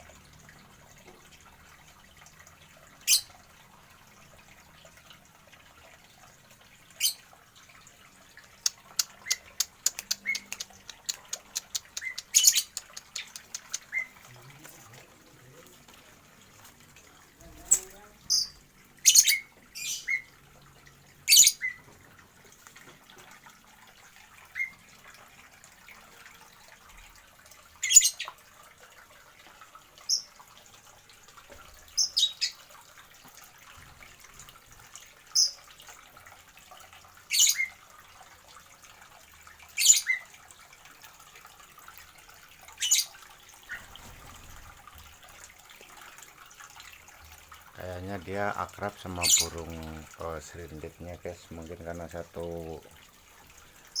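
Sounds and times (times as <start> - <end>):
small birds shrill calls: 9.2 - 14.1.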